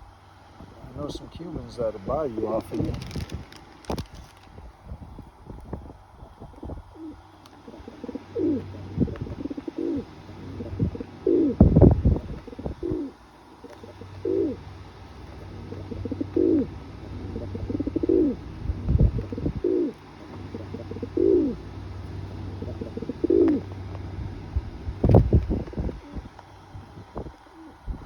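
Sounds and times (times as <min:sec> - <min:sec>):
pigeon cooing: 0:06.3 - 0:23.9, 0:25.1 - 0:26.4, 0:27.4 - 0:28.0.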